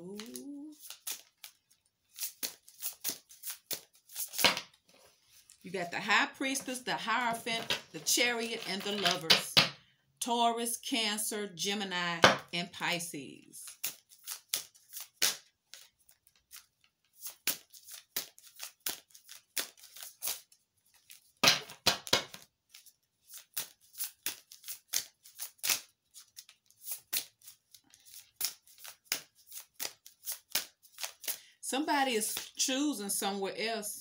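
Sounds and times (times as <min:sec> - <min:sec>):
cards being shuffled: 0:00.0 - 0:05.6, 0:07.2 - 0:09.4, 0:13.7 - 0:31.4.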